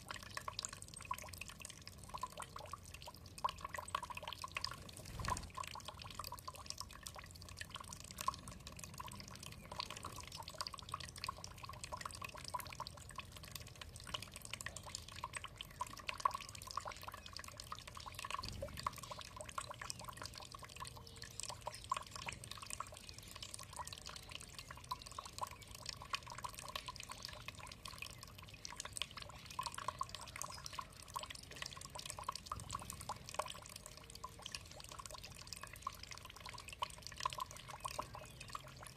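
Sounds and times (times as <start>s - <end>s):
water dripping and trickling: 0.0s - 38.9s.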